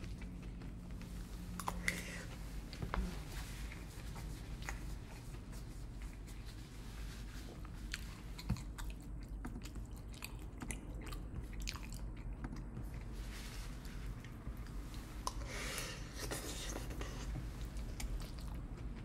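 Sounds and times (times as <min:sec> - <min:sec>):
person chewing with wet mouth clicks: 0:07.9 - 0:13.1.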